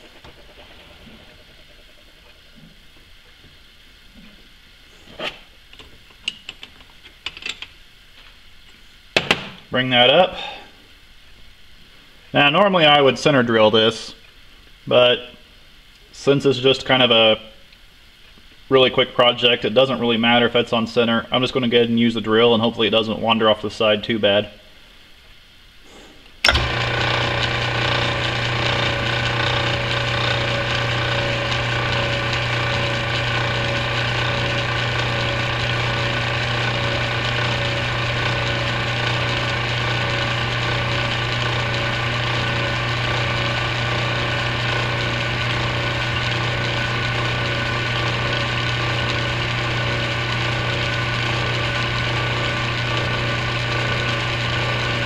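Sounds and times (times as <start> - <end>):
metal lathe humming: 26.4 - 55.0.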